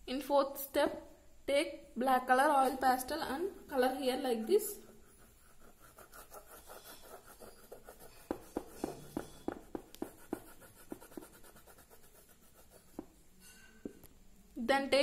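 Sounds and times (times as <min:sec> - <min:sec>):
oil pastel scratching on paper: 0:03.6 - 0:13.2.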